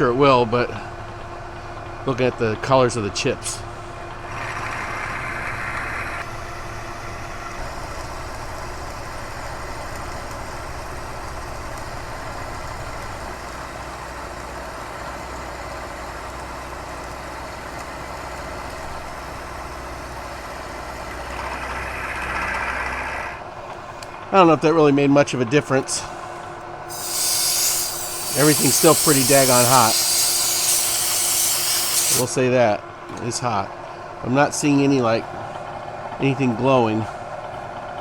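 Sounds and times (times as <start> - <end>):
milling machine cutting metal: 26.9 - 32.3.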